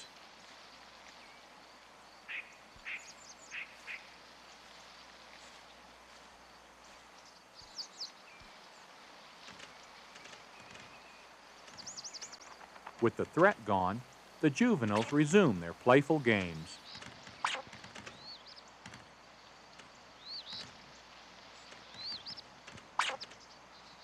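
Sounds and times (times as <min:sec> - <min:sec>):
faint outdoor hiss: 0:00.0 - 0:24.0
squirrel alarm calls: 0:02.2 - 0:04.2, 0:10.6 - 0:19.4, 0:20.1 - 0:24.0.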